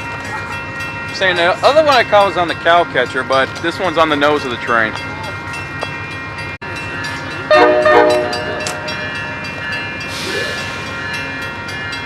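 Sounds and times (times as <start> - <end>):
diesel locomotive idling: 0.0 - 12.0
train horn blast: 7.5 - 8.9.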